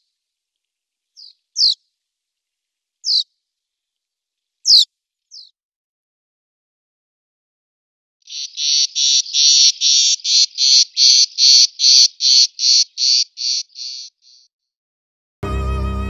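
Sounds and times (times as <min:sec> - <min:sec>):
bird calling with rasping notes: 0:01.1 - 0:01.9, 0:03.0 - 0:03.9, 0:04.6 - 0:05.6, 0:08.2 - 0:14.5
violin music: 0:15.4 - 0:16.0.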